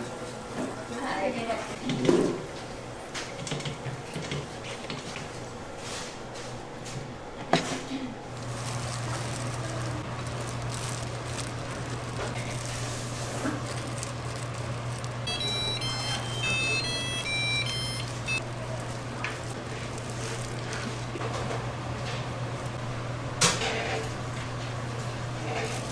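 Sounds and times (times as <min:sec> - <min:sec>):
electronic beeping melody: 0:15.3 - 0:18.4.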